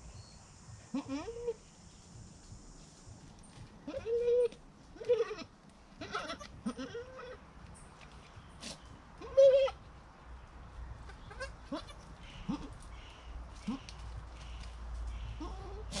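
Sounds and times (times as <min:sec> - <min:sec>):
goats bleating: 0:03.8 - 0:07.4, 0:11.1 - 0:12.7.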